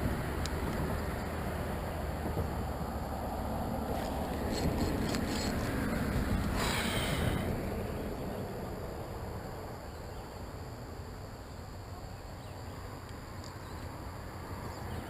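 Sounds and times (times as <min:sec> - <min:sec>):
wind rumble on microphone: 0:00.0 - 0:09.8.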